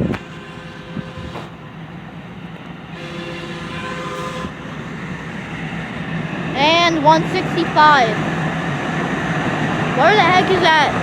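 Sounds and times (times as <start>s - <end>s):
train horn: 0.0s - 1.8s, 2.9s - 5.4s
light-rail train rumble: 0.0s - 11.0s.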